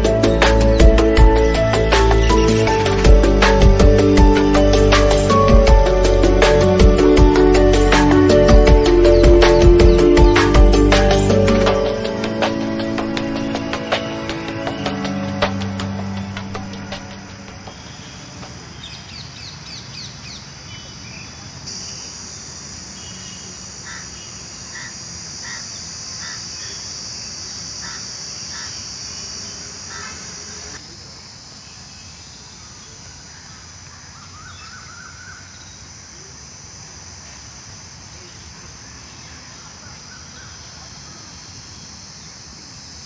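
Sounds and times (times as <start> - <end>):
birds calling: 0.0 - 27.0, 27.8 - 30.8
steady high-pitched hiss: 0.0 - 43.0.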